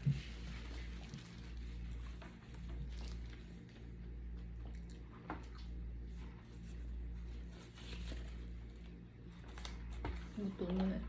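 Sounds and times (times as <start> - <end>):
steady low hum: 0.0 - 11.0
person chewing food: 0.6 - 7.2.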